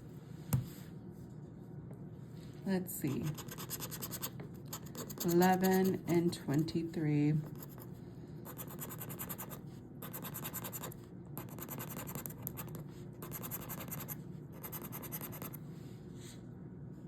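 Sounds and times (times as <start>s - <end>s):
scratching lottery ticket coating: 3.1s - 6.5s, 8.6s - 14.1s.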